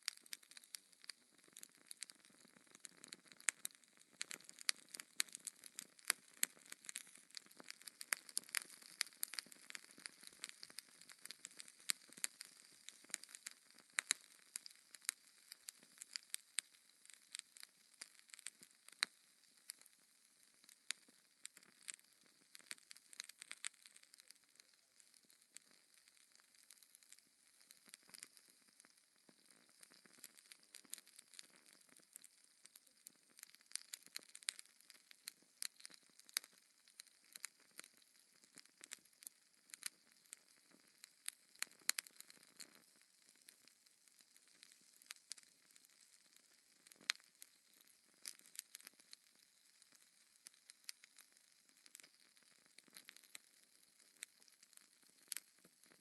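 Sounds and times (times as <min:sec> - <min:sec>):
wood fire crackling: 0:00.0 - 0:19.9, 0:20.5 - 0:56.0.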